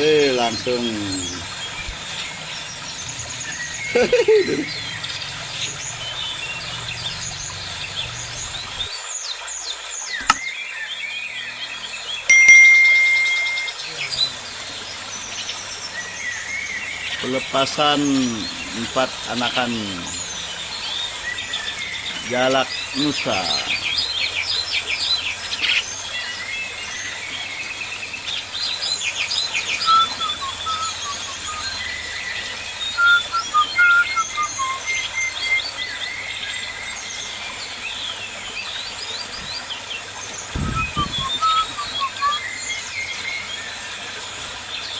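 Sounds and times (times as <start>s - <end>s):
birds chirping: 0.0s - 44.9s
loud ringing tone: 12.3s - 13.8s
thin held bird whistles: 29.8s - 31.8s, 33.0s - 35.6s, 40.6s - 42.4s.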